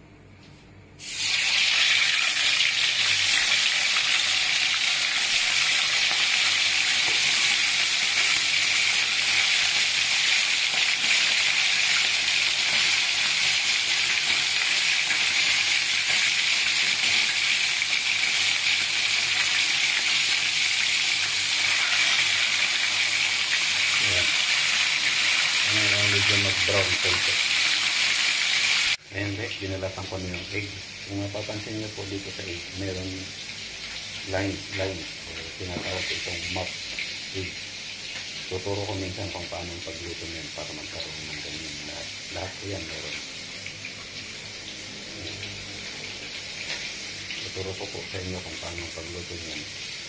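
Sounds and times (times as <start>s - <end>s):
wings sizzling in hot oil: 1.0s - 50.0s.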